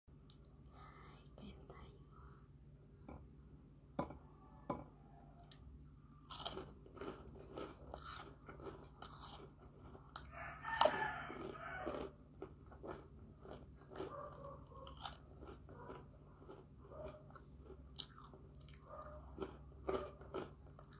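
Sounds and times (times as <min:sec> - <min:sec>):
person chewing crunchy snacks: 0:06.1 - 0:20.9.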